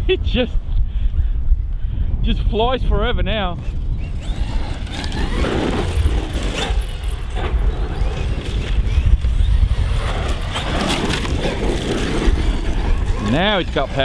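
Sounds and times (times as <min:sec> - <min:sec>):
wind buffeting microphone: 0:00.0 - 0:14.0
electric rc truck motor running: 0:03.5 - 0:14.0.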